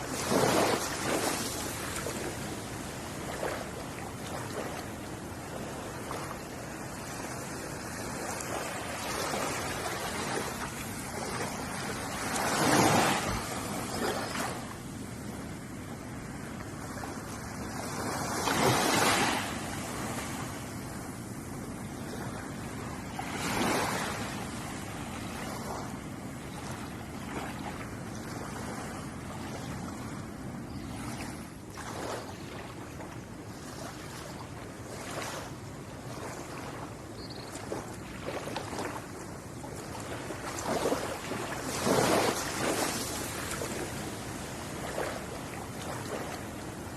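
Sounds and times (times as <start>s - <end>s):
ocean waves lapping on shore: 0.0s - 46.9s.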